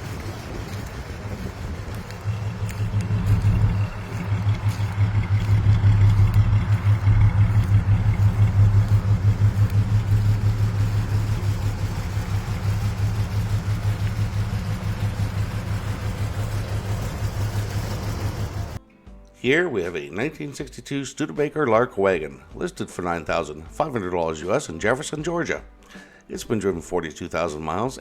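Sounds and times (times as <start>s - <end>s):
car engine idling: 0.0s - 18.8s.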